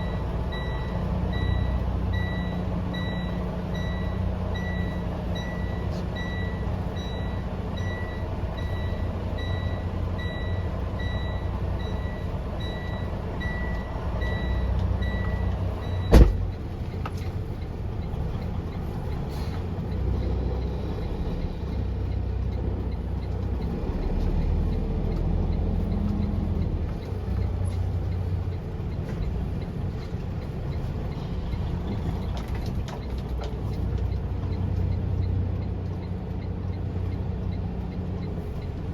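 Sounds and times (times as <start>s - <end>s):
reversing alarm beeping: 0.0s - 16.4s
truck engine rumbling: 0.0s - 38.9s
sharp thump: 16.1s - 16.5s.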